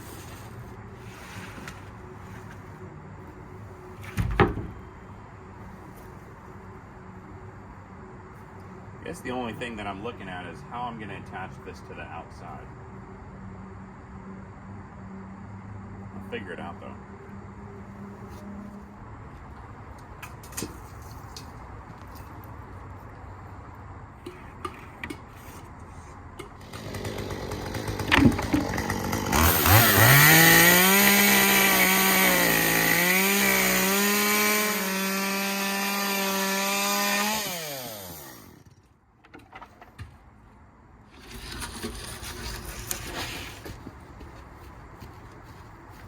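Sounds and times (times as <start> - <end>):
electric power saw running: 26.6 - 38.7
knocks and handling noises: 28.0 - 28.9.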